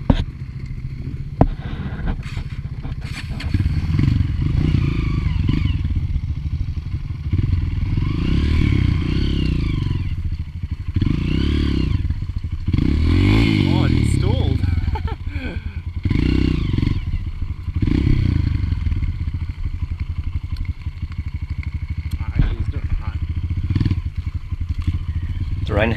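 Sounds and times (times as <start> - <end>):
dirt bike engine revving: 1.5 - 6.4, 7.1 - 19.6, 23.3 - 25.9.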